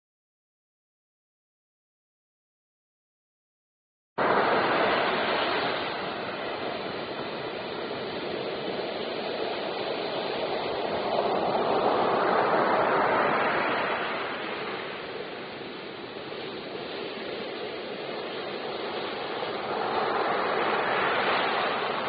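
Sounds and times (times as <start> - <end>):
rushing noise: 4.2 - 22.0.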